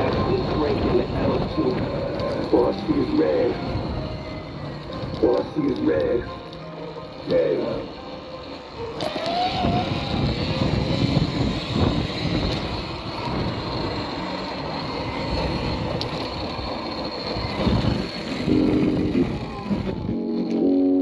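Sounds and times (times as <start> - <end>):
wind rumble on microphone: 0.0 - 5.3, 9.4 - 20.2
road noise: 0.0 - 21.0.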